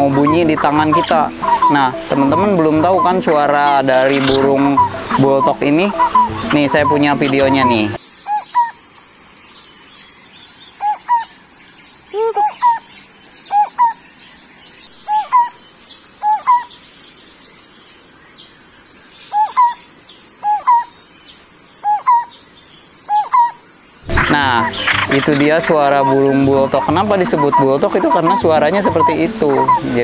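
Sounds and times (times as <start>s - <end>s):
barbet calling: 0.0s - 8.8s, 10.8s - 11.4s, 12.1s - 14.0s, 14.8s - 15.6s, 16.2s - 16.7s, 19.3s - 19.8s, 20.4s - 21.0s, 21.8s - 22.4s, 23.1s - 30.0s.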